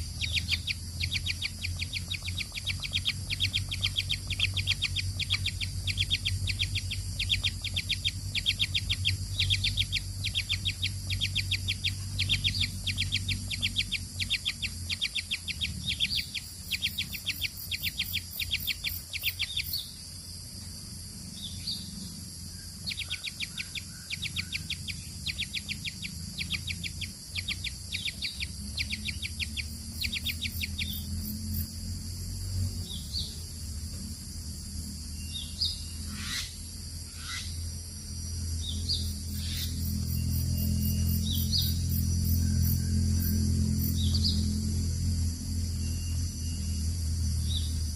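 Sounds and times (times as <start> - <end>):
baby birds chirping: 0.0 - 19.9, 22.9 - 31.7
steady low hum: 0.0 - 47.9.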